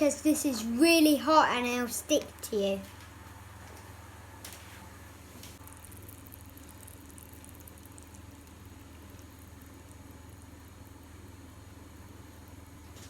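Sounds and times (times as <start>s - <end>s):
steady low hum: 0.0s - 13.0s
caramel sizzling: 4.5s - 13.0s.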